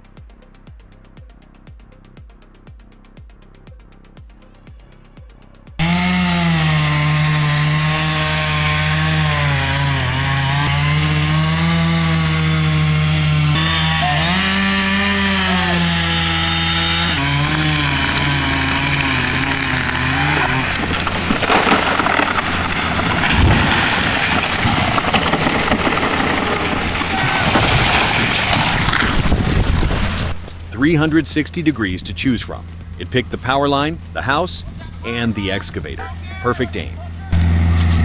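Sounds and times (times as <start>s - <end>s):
chainsaw cutting wood: 5.8s - 38.0s
noisy crackling: 17.1s - 38.0s.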